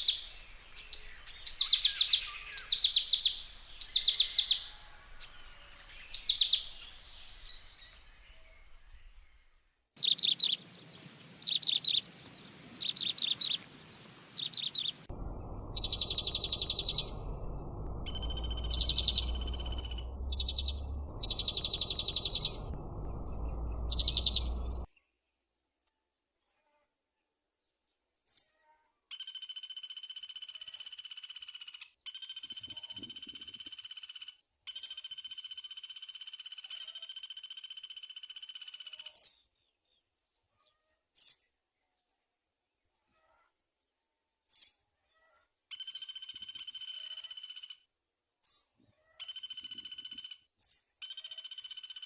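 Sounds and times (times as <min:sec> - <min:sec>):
nestling birds chirping: 0:00.0 - 0:24.9
low rumble: 0:15.0 - 0:24.9.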